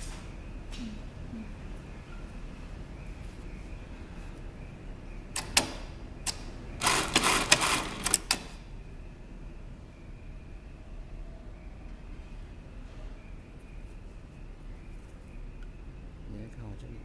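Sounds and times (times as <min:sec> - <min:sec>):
sewing machine clicks: 0:06.3 - 0:08.5
sewing machine rapid stitching: 0:06.8 - 0:08.4.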